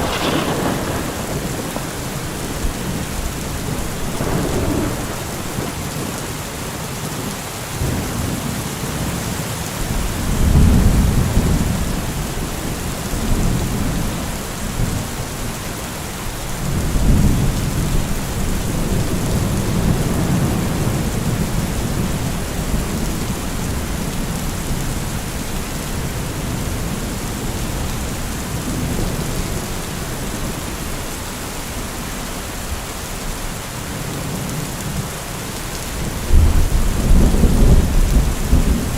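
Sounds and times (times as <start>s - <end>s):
rolling thunder: 0.0s - 6.6s, 7.8s - 15.5s, 36.0s - 38.9s
heavy rain hissing: 0.0s - 38.9s.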